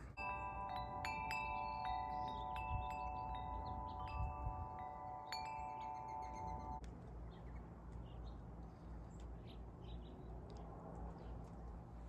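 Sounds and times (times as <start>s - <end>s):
wind chimes ringing: 0.0s - 6.8s.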